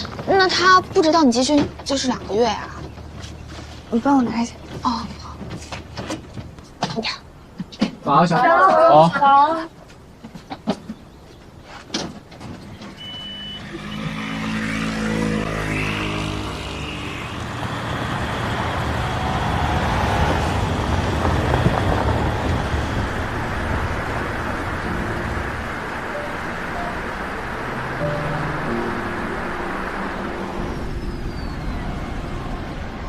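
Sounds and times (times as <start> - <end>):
road noise: 0.0 - 33.0
vehicle engine pulling away: 13.0 - 33.0.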